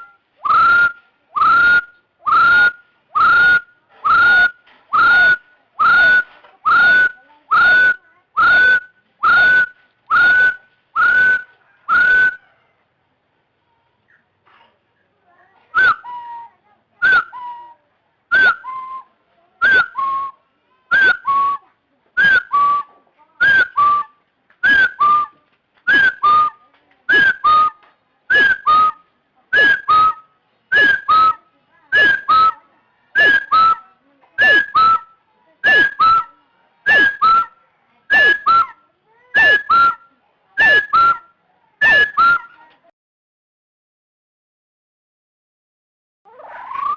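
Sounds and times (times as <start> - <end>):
francolin calling: 25.9 - 40.0.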